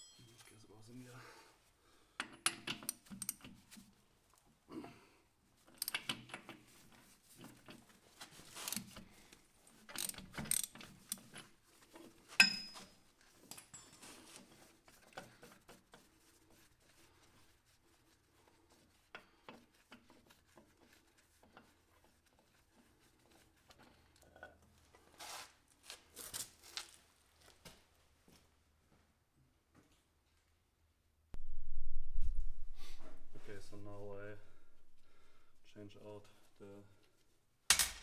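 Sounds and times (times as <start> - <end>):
metal tools clicking and rattling: 5.8 - 6.4, 9.9 - 11.5
sharp metallic clack: 37.7 - 38.0.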